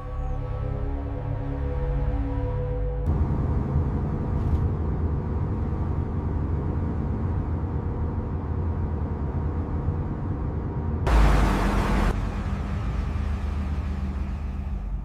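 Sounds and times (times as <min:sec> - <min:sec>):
music: 0:00.0 - 0:03.2
steady low rumble: 0:03.0 - 0:15.0.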